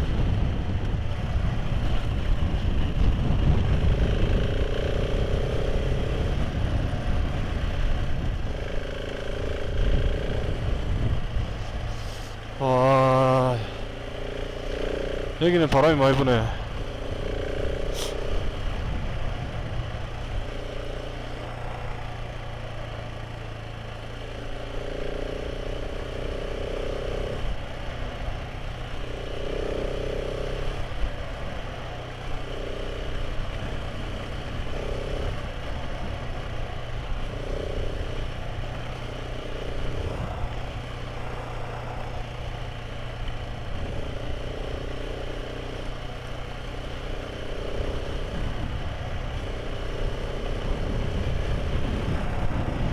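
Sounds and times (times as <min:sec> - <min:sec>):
motorcycle engine running: 0:00.0 - 0:52.9
higher hum: 0:11.6 - 0:14.0, 0:15.4 - 0:17.0
wind buffeting microphone: 0:50.6 - 0:52.9.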